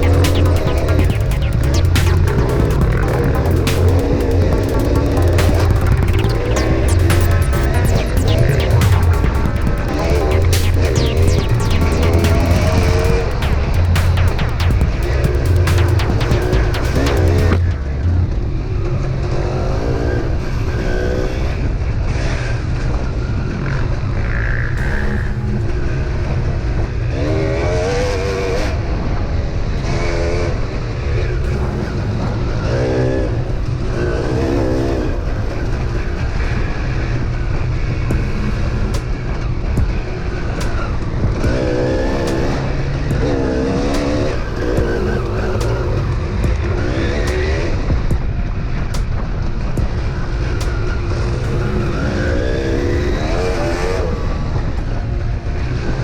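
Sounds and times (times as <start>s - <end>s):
heavy low rumble: 0.0s - 19.9s.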